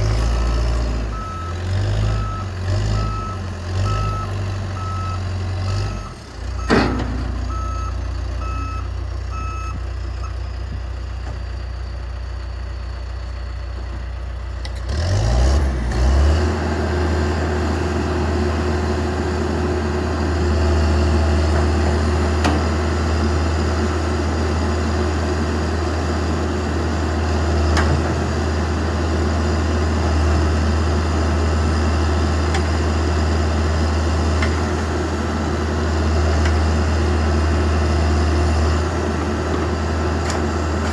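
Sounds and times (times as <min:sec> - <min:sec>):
diesel engine running: 0:00.0 - 0:40.9
reversing alarm beeping: 0:01.1 - 0:10.4.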